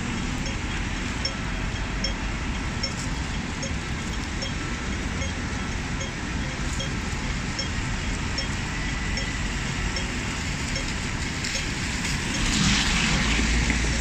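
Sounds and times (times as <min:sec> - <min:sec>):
crossing signal ticking: 0:00.0 - 0:12.6
city traffic noise: 0:00.0 - 0:14.0
vehicle passing: 0:11.4 - 0:14.0.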